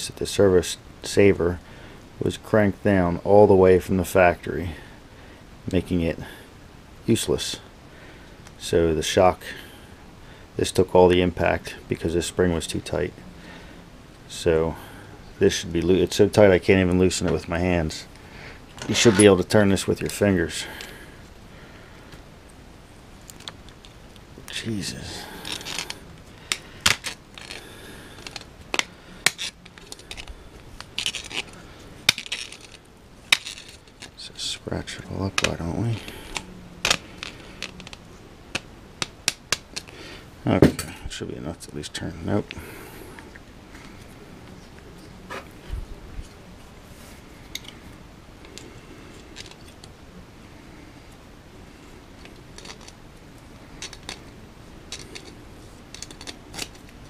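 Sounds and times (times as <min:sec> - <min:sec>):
small parts rattling: 0:18.7 - 0:20.6, 0:23.3 - 0:40.0, 0:47.4 - 0:50.0, 0:52.1 - 0:57.0
hand tools clicking and clinking: 0:25.4 - 0:34.2, 0:52.2 - 0:53.0, 0:53.8 - 0:54.3, 0:54.9 - 0:57.0.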